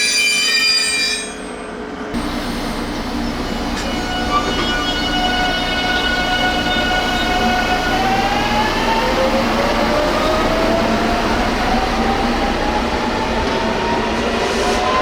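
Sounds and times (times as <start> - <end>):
train motor whine rising: 2.2 - 13.8
train wheels rumbling: 2.2 - 15.0.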